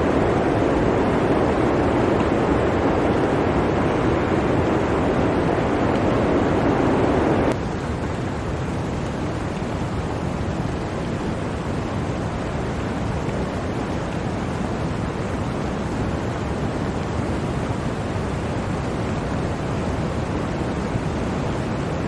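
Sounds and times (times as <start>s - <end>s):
blizzard wind rushing: 0.0s - 7.6s.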